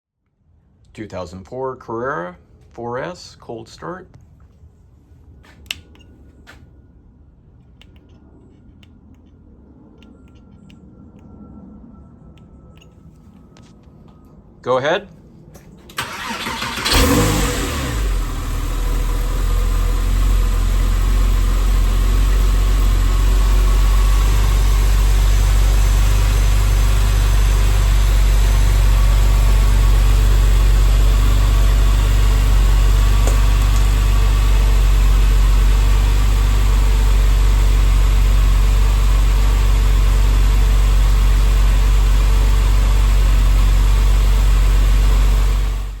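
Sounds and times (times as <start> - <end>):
car engine cold start and idle: 15.8 - 46.0.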